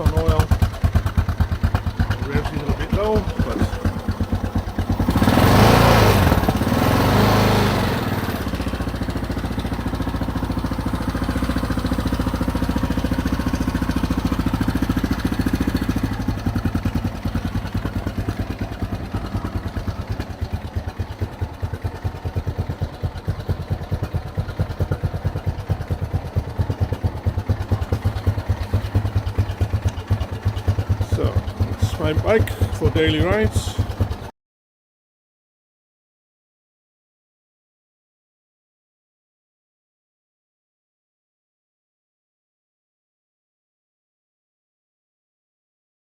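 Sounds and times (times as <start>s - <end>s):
motorcycle engine idling: 0.0s - 34.3s.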